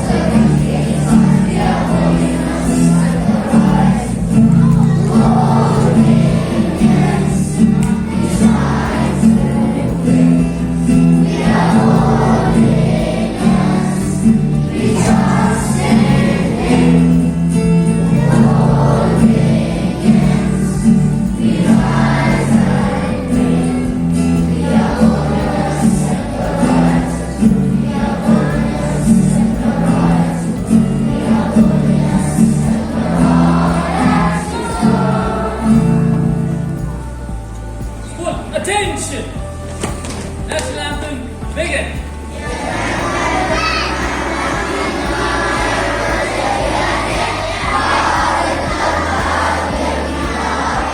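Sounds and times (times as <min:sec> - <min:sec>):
group singing an anthem: 0:00.0 - 0:50.9
held instrumental notes: 0:00.0 - 0:50.9.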